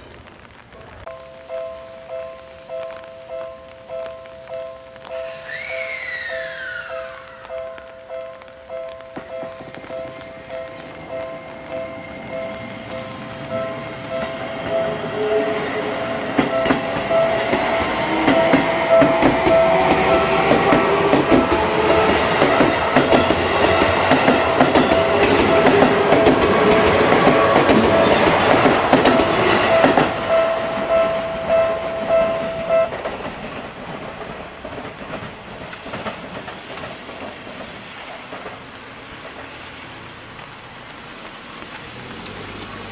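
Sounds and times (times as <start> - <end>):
train wheels clattering: 8.9 - 39.6
steady high tone: 9.2 - 33.0.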